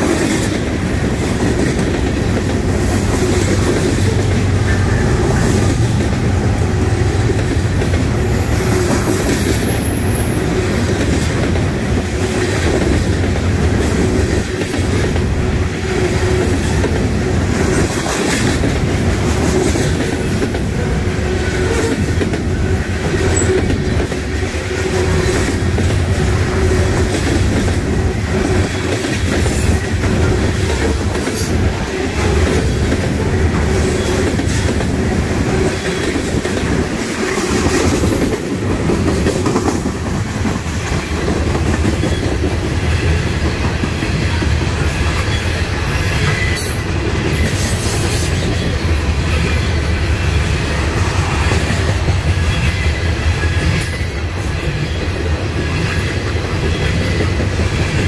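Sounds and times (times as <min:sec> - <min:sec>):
clickety-clack over rail joints: 0:00.0 - 0:58.0.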